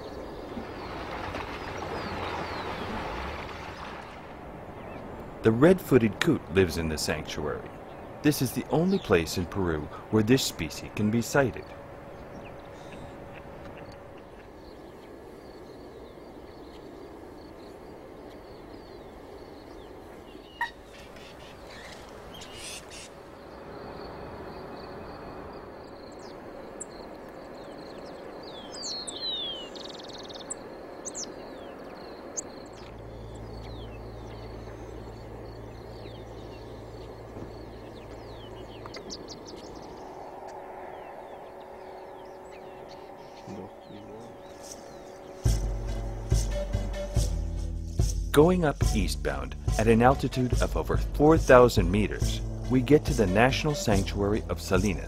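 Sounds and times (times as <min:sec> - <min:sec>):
wetland birds calling: 0:00.0 - 0:47.3, 0:48.4 - 0:55.0
steady background hiss: 0:04.2 - 0:46.7
low hum: 0:31.7 - 0:55.0.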